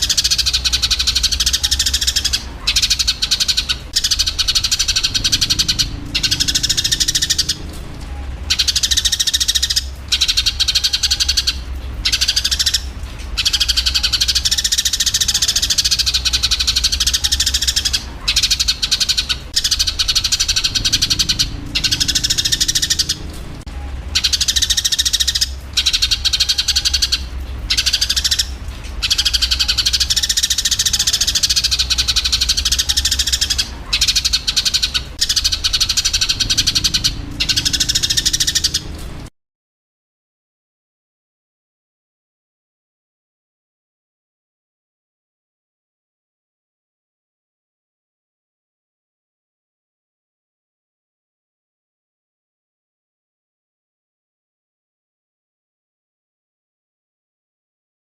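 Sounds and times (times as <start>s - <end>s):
sparrows chirping and chattering: 0.0s - 39.3s
steady low hum: 0.0s - 39.3s.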